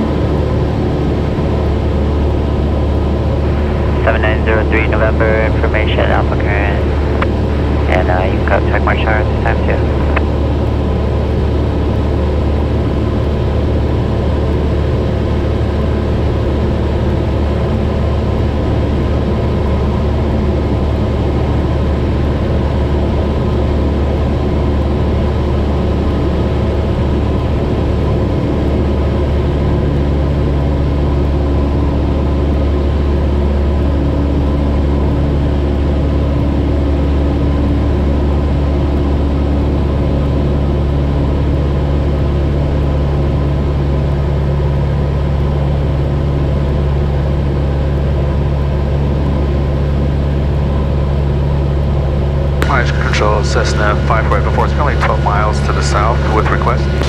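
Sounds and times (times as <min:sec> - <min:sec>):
plane engine droning in cabin: 0:00.0 - 0:57.0
higher steady tone: 0:03.3 - 0:10.4, 0:52.6 - 0:57.0.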